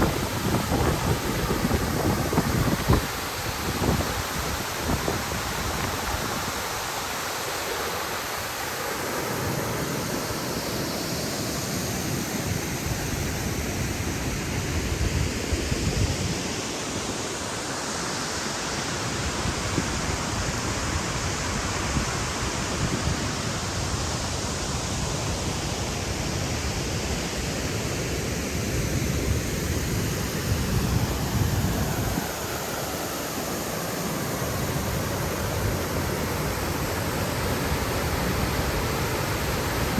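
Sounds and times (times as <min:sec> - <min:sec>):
wind buffeting microphone: 0:00.0 - 0:06.6
waterfall rushing: 0:00.0 - 0:39.9.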